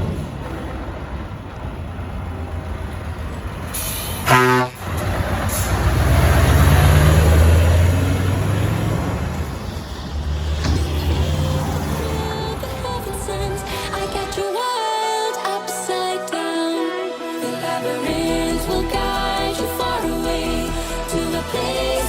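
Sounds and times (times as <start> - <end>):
diesel truck engine running: 0.0 - 14.6
air hissing: 3.7 - 4.4
air horn blast: 4.2 - 4.8.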